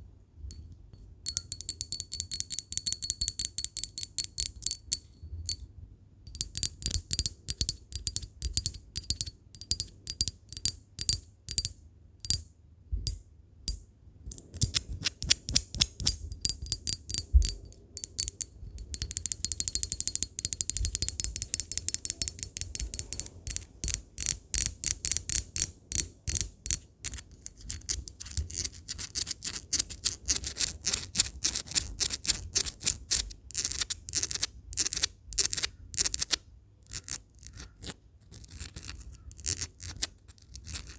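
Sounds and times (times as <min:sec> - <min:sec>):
glass tapping: 0:01.3 - 0:05.6, 0:06.3 - 0:11.7, 0:16.0 - 0:22.5.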